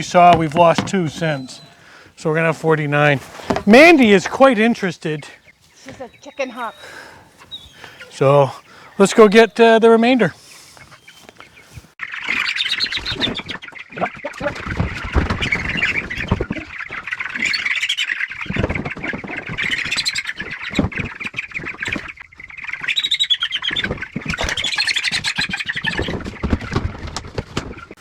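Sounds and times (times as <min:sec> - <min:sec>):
knocks and bumps: 0:00.0 - 0:02.0, 0:03.1 - 0:04.5
chicks cheeping and squawking: 0:00.0 - 0:02.1, 0:04.8 - 0:17.5.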